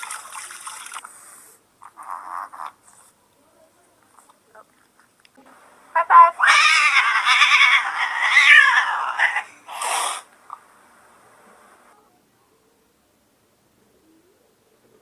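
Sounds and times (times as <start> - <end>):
cat yowling: 6.4 - 9.5
harsh noisy burst: 9.2 - 10.3.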